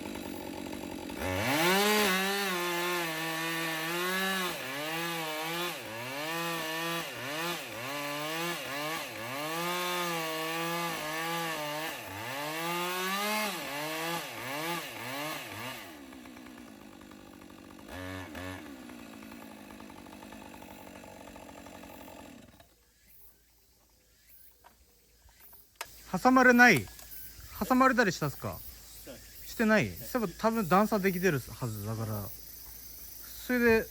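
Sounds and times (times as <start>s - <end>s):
chainsaw cutting wood: 0.0s - 22.9s.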